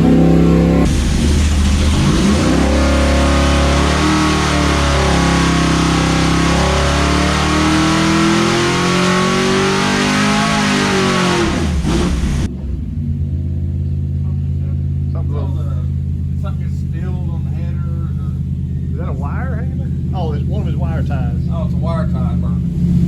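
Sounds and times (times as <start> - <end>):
engine revving at full throttle: 0.0 - 13.2.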